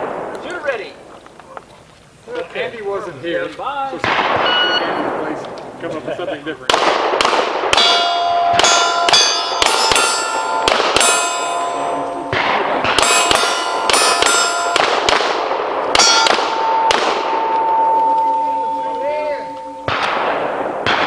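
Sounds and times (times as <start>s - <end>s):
steel targets clanging: 4.2s - 5.0s, 7.8s - 15.1s, 15.8s - 20.6s.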